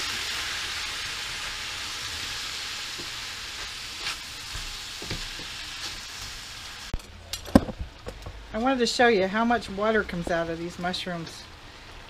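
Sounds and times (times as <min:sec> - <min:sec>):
food sizzling in a frying pan: 0:00.0 - 0:07.0.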